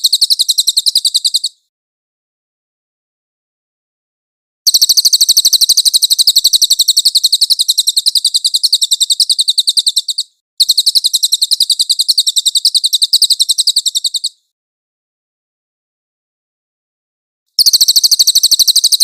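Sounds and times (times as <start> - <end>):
songbird high-pitched trill: 0.0 - 1.6, 4.7 - 14.4, 17.6 - 19.0.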